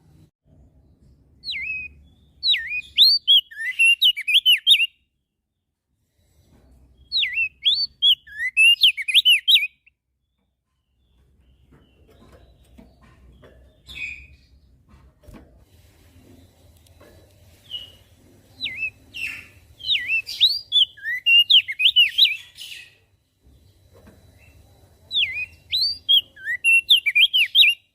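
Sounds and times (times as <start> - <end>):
bird warbling song: 1.4 - 5.0, 7.0 - 14.8, 17.5 - 27.9.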